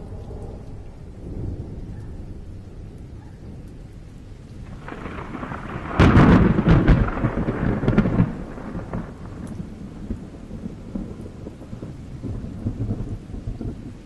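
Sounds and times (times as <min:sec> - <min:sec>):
steady rain: 0:00.0 - 0:14.0
thunderclap: 0:04.6 - 0:13.8.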